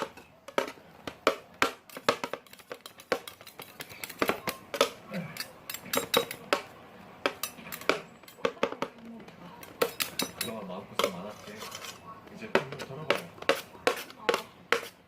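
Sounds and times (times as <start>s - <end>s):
small hard objects clicking: 0.0s - 11.4s.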